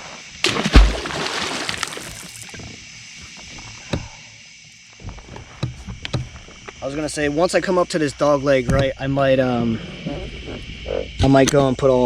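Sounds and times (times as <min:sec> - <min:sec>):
fish splashing into water: 0:00.4 - 0:02.6
water sloshing: 0:00.4 - 0:02.6.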